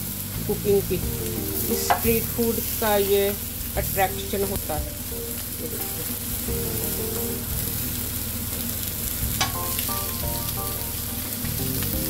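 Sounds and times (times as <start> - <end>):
food sizzling on iron griddle: 0.0 - 12.0.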